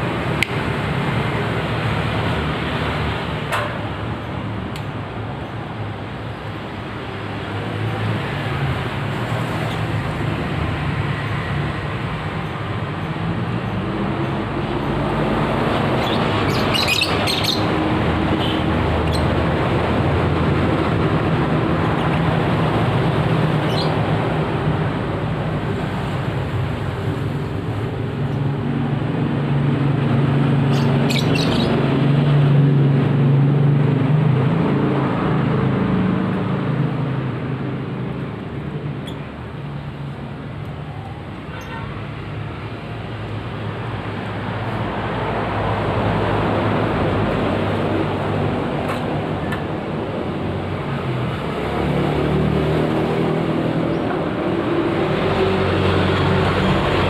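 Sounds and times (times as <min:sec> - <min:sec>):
road traffic passing: 0:00.0 - 0:57.0
bird chirps: 0:16.0 - 0:17.7, 0:23.6 - 0:24.0, 0:30.7 - 0:31.8.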